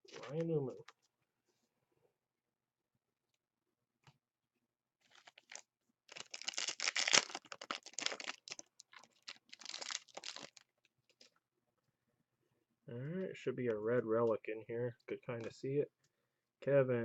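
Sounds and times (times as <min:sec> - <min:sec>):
card pack wrapper tearing: 0:05.1 - 0:10.6.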